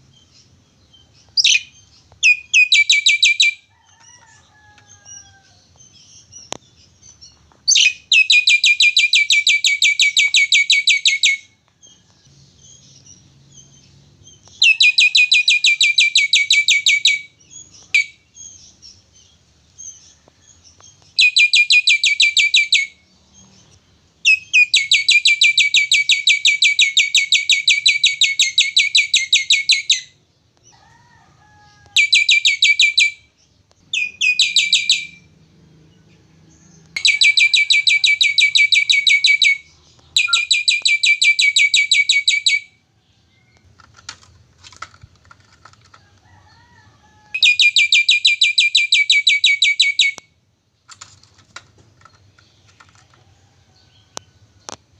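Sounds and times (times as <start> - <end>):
starling calling rapid high notes: 37.0 - 42.6.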